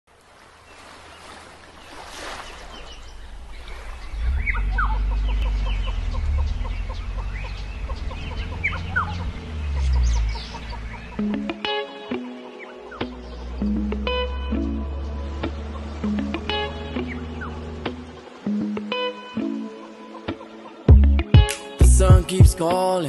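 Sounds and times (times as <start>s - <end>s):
birds chirping and clucking: 1.8s - 19.1s
low steady rumble: 3.0s - 11.2s.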